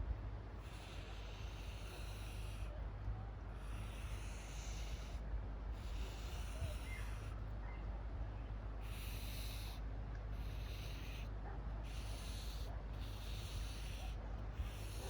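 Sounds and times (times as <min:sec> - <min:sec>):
low steady rumble: 0:00.0 - 0:15.0
marker scratching on paper: 0:10.4 - 0:11.2, 0:11.9 - 0:15.0.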